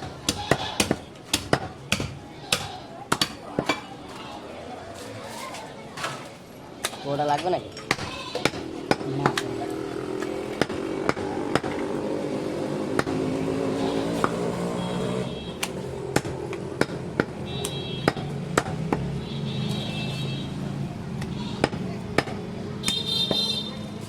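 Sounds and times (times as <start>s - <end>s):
butcher chopping meat: 0.0s - 3.9s, 7.8s - 9.6s, 10.2s - 14.8s, 15.6s - 19.2s, 21.2s - 23.6s
street noise: 0.0s - 24.0s
voices: 0.0s - 24.0s.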